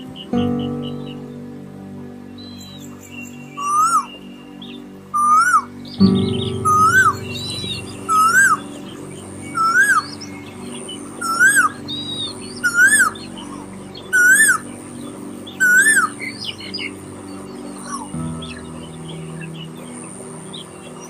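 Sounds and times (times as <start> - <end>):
soft background music: 0.0 - 21.0
bird whistled call: 3.0 - 4.4, 5.2 - 10.5, 11.1 - 13.5, 14.1 - 14.6, 15.6 - 16.9.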